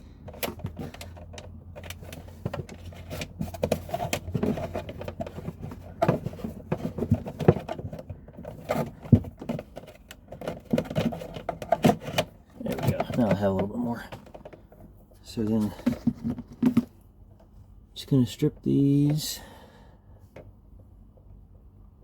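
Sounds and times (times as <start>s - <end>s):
cable rustling and scraping: 0.0s - 17.0s.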